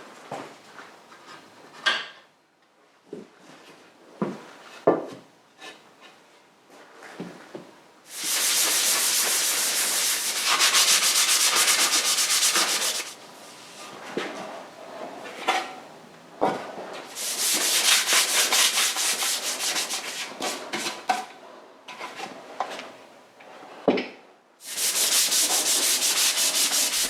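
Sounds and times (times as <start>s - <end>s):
sanding rasp on metal: 8.1s - 13.2s, 17.1s - 20.9s, 24.6s - 27.0s.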